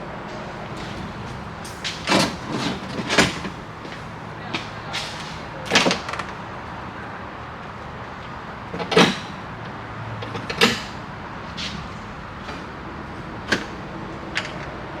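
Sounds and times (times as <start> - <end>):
hardware clicks and knocks: 14.3 - 14.8.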